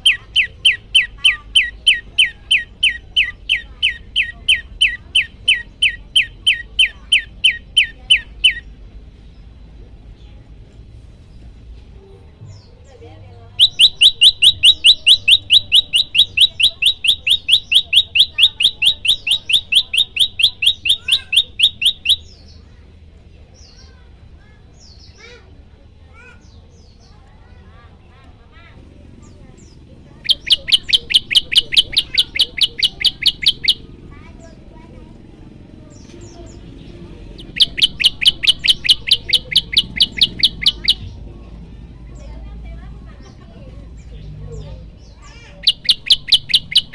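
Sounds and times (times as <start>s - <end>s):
bird rapid-fire call: 0.0s - 8.7s, 13.6s - 22.6s, 29.2s - 35.2s, 35.9s - 41.3s, 45.1s - 46.9s.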